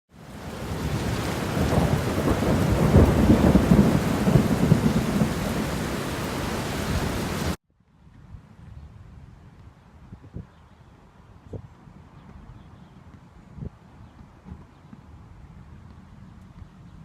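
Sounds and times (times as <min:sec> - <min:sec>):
heavy rain: 0:00.1 - 0:07.6
thunder rumbling: 0:00.2 - 0:07.6.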